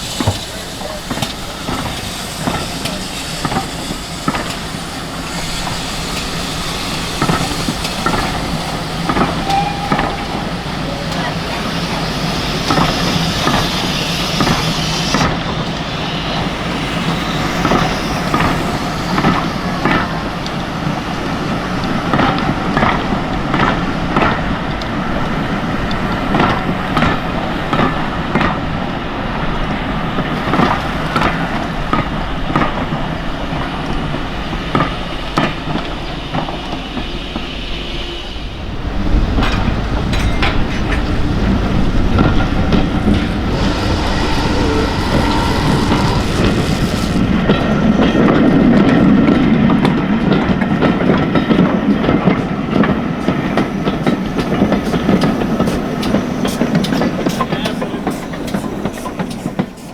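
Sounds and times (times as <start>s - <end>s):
carriage wheels clicking on rail joints: 0.0s - 28.6s, 39.1s - 59.9s
train rumble: 0.0s - 59.9s
heavy low rumble: 38.5s - 49.4s.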